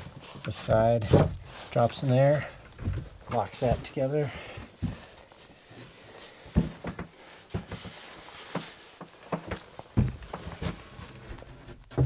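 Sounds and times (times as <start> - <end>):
wooden panels knocking and thumping: 1.0 - 1.6, 2.6 - 3.8, 8.6 - 12.0.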